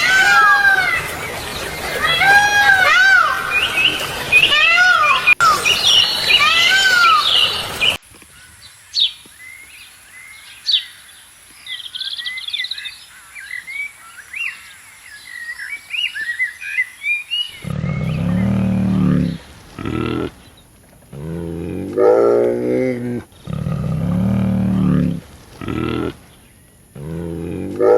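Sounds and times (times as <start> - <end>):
loud animal calls: 0.0 - 7.9, 17.5 - 26.4
birds chirping and whistling: 0.0 - 20.6.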